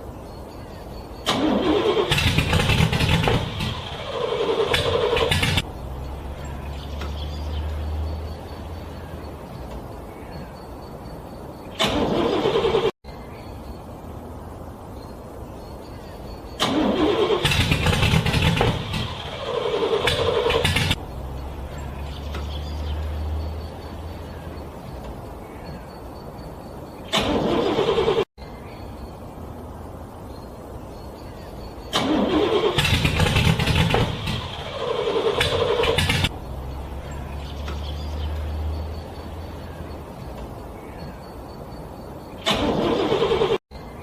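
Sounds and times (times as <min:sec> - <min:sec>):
car engine cranking: 0:01.2 - 0:09.7, 0:11.7 - 0:13.0, 0:16.5 - 0:24.4, 0:27.0 - 0:28.3, 0:31.8 - 0:40.6, 0:42.4 - 0:43.6.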